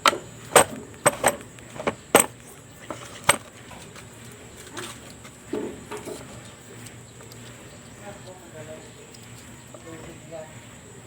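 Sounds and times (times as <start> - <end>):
tools clicking and knocking: 0.0 - 3.5.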